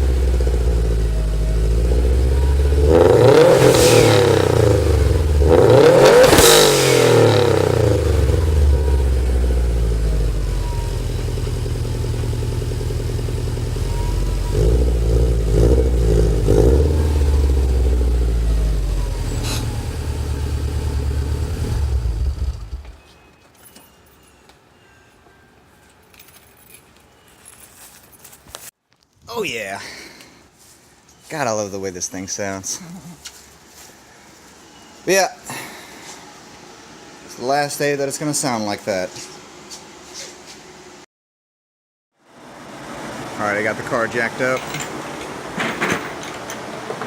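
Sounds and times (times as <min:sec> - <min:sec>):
car engine revving and idling: 0:00.0 - 0:23.0.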